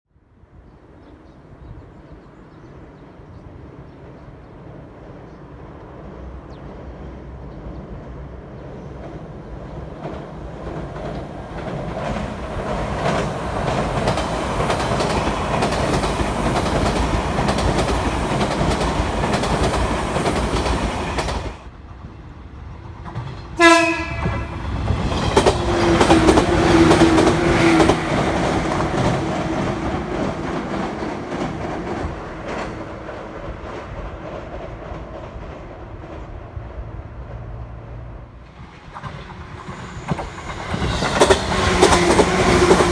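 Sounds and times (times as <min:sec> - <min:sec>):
train hum: 0:00.3 - 0:42.9
train wheels clattering over rail joints: 0:10.0 - 0:21.6, 0:23.0 - 0:36.3, 0:38.5 - 0:42.9
train horn: 0:23.6 - 0:24.7.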